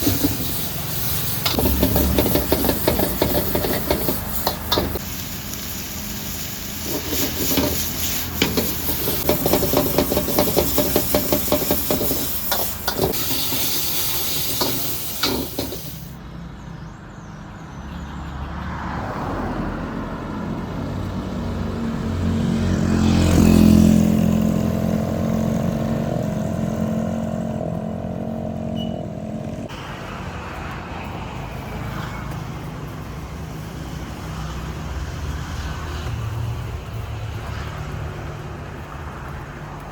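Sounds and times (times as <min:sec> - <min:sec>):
cooking utensils clanking: 0:00.0 - 0:05.0, 0:06.8 - 0:16.1
engine passing: 0:00.0 - 0:16.2, 0:18.6 - 0:39.2
food frying with sizzling hiss: 0:00.0 - 0:16.2
street traffic: 0:00.0 - 0:39.9.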